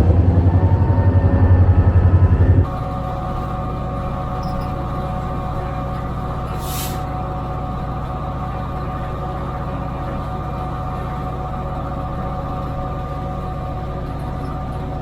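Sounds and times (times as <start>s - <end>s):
diesel locomotive engine drone: 0.0s - 15.0s
steady whine: 0.0s - 15.0s
air hiss: 6.6s - 7.0s.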